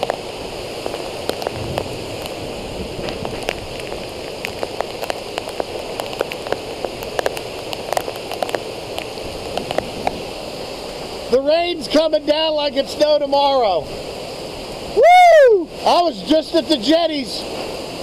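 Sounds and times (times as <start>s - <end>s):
raindrops ticking: 0.0s - 10.2s
heavy rain: 0.0s - 18.0s
storm wind: 0.0s - 18.0s.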